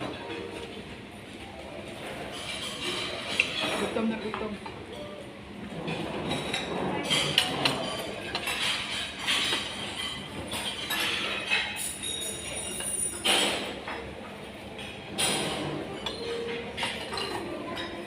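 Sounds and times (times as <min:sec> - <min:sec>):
cutlery clinking on china: 0:02.2 - 0:05.1, 0:05.9 - 0:14.1, 0:14.8 - 0:18.0.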